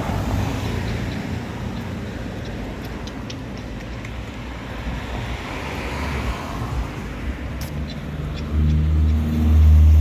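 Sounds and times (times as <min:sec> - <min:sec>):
street traffic rumble: 0:00.0 - 0:10.0.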